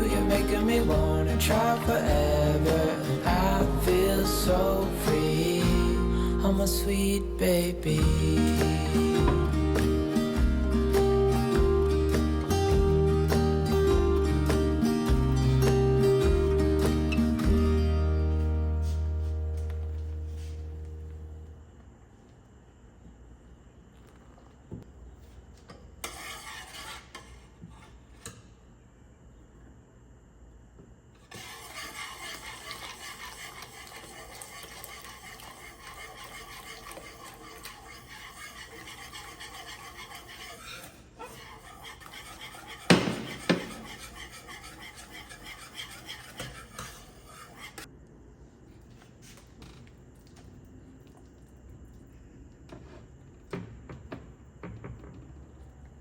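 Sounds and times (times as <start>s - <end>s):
steady scraping hiss: 0.0s - 11.4s, 31.1s - 53.5s.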